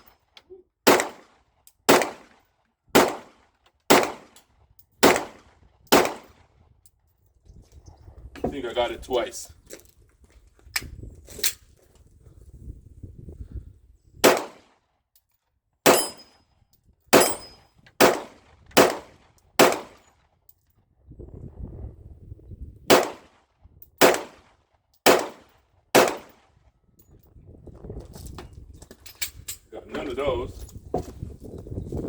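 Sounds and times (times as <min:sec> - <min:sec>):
pistol shots: 0:00.8 - 0:02.4, 0:03.0 - 0:04.4, 0:05.0 - 0:06.4, 0:14.2 - 0:14.8, 0:15.8 - 0:16.3, 0:17.1 - 0:20.0, 0:22.9 - 0:23.4, 0:24.0 - 0:26.4.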